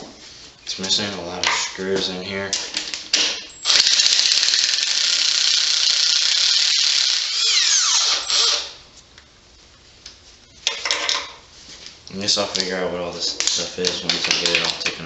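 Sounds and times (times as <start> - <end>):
power tool whirring: 3.6 - 8.8.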